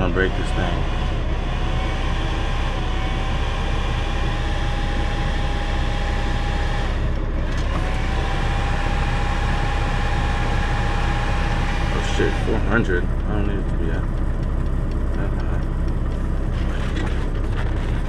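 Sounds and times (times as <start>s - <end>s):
thin steady whine: 0.0s - 6.9s, 7.9s - 18.0s
diesel engine idling: 0.0s - 18.0s.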